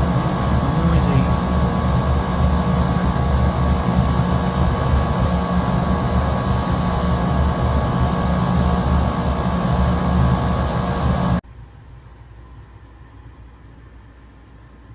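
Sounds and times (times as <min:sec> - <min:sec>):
condensing units humming: 0:00.0 - 0:11.4.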